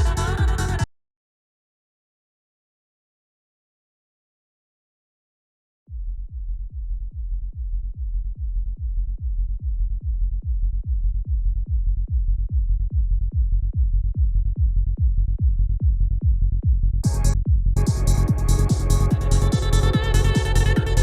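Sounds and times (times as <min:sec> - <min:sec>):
muffled kick drum: 0:00.0 - 0:00.9, 0:05.9 - 0:21.0
rolling synth bass: 0:00.0 - 0:00.9, 0:07.6 - 0:21.0.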